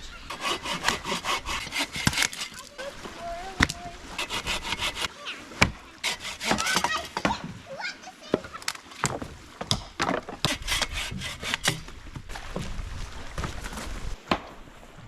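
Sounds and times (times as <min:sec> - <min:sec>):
hand saw cutting wood: 0:00.3 - 0:02.8, 0:03.6 - 0:07.4, 0:10.4 - 0:11.9.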